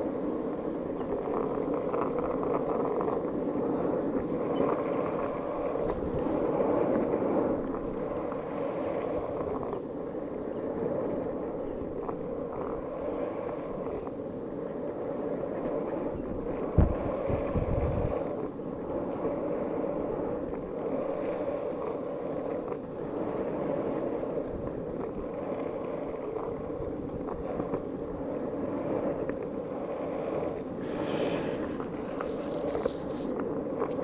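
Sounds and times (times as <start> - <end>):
wind buffeting microphone: 0.0 - 34.0
strong wind blowing: 16.8 - 18.2, 30.5 - 33.7.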